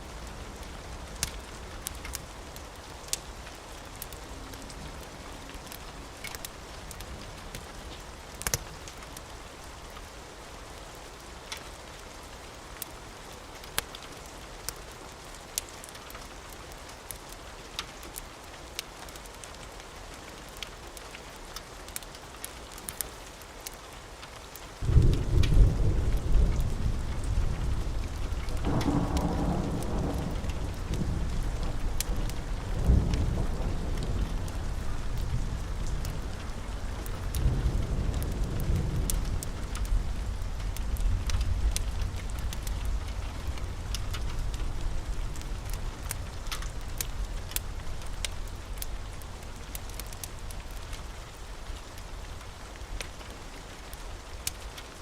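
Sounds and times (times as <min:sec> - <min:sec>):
fire crackling: 0:00.0 - 0:55.0
steady rain: 0:00.0 - 0:55.0
thunder rumbling: 0:24.8 - 0:51.0.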